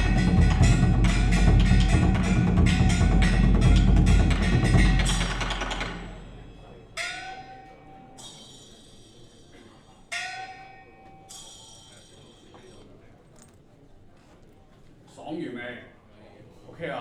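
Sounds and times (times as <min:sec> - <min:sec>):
percussion music over loudspeakers: 0:00.0 - 0:07.4
struck bell-like notes: 0:00.0 - 0:12.5.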